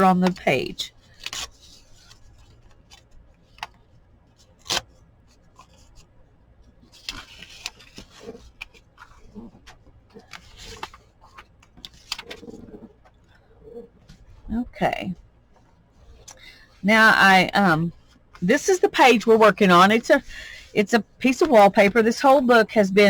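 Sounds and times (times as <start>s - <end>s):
paper rustling: 6.8s - 13.2s.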